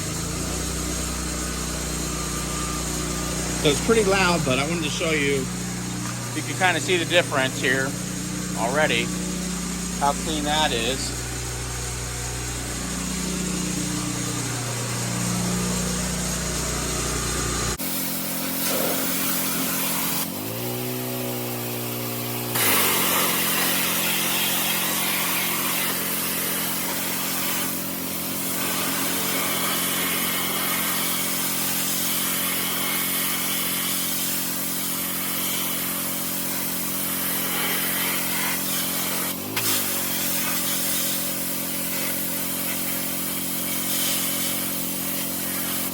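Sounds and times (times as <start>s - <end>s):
pressure washer engine running: 0.0s - 45.9s
spray hissing against wall: 17.8s - 45.9s.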